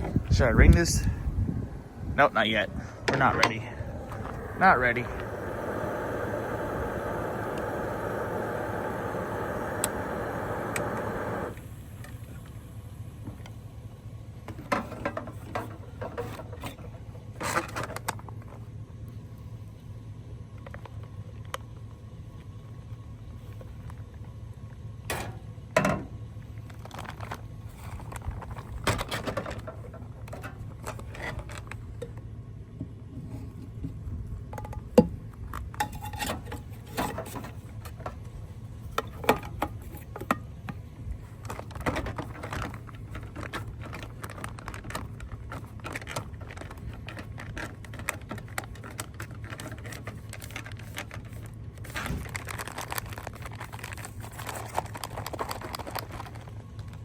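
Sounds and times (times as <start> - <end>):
steady low hum: 0.0 - 17.5.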